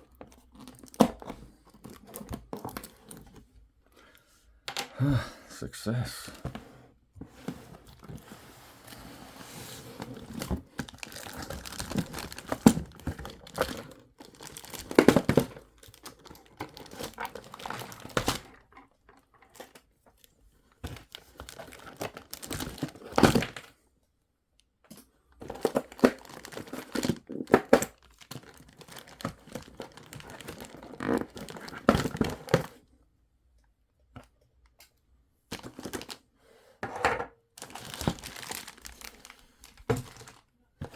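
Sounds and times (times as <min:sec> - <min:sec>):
packaging crinkling and tearing: 0:00.4 - 0:03.2, 0:10.0 - 0:18.6, 0:20.9 - 0:23.6, 0:25.5 - 0:32.7, 0:35.5 - 0:36.2, 0:37.6 - 0:40.5.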